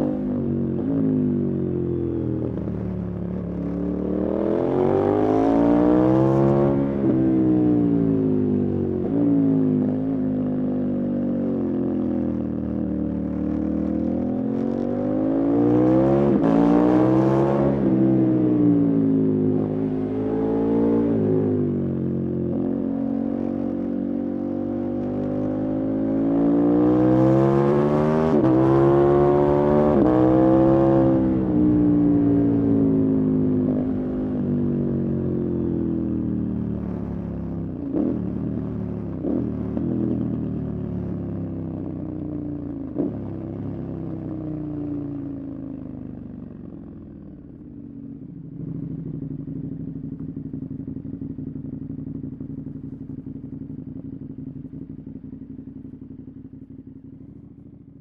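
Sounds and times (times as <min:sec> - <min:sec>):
motorcycle engine revving: 0:00.0 - 0:45.2, 0:46.9 - 0:58.0.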